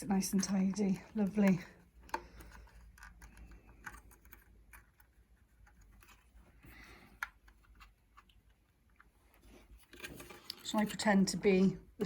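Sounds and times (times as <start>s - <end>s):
plastic parts clicking: 0.2s - 6.3s.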